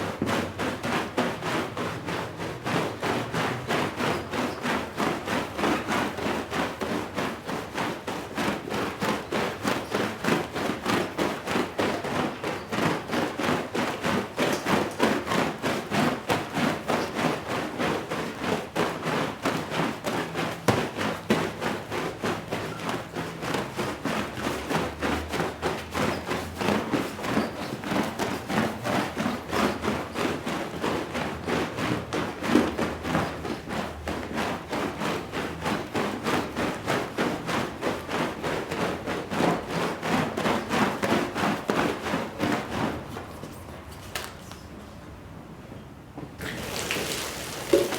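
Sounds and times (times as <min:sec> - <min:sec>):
cleaning tool thudding on wet rug: 0:46.4 - 0:47.9.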